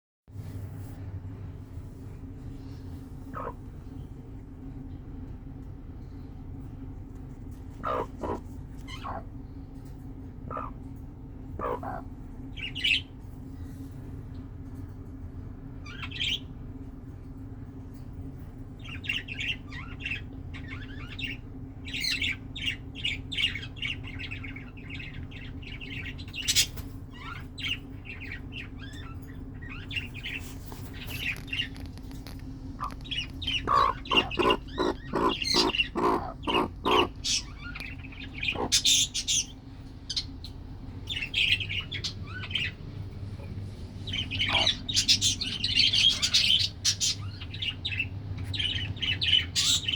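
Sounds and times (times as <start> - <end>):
low hum: 0.3 - 49.9
chicks peeping: 3.3 - 3.6, 7.7 - 9.3, 11.6 - 12.0, 29.8 - 42.8, 43.4 - 49.9
hen clucking: 3.3 - 3.7, 7.8 - 9.3, 10.5 - 10.8, 11.6 - 12.1, 32.8 - 39.5, 43.4 - 47.1.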